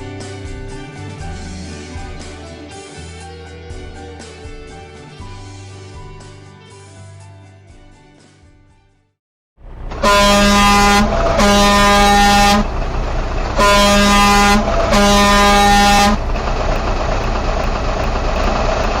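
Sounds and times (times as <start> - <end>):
steady rumbling noise: 9.6 - 19.0
loud horn blasts: 9.7 - 19.0.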